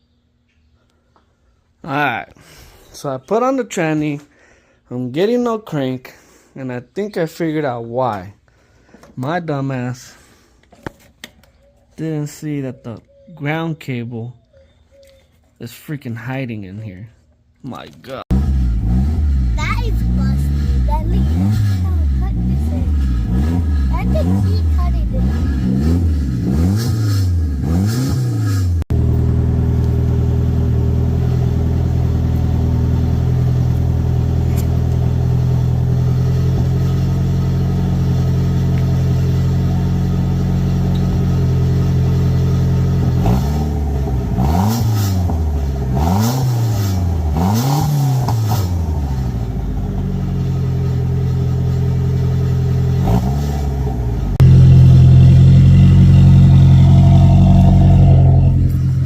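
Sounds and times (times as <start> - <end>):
car engine idling and revving: 18.3 - 59.0.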